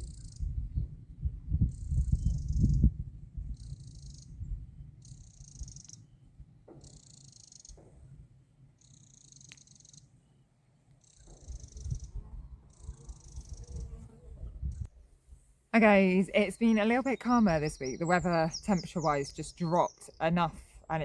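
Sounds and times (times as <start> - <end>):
insect chirping raspily: 0.0 - 0.5, 3.5 - 4.4, 5.0 - 6.0, 6.8 - 7.8, 8.8 - 10.1, 11.0 - 14.0.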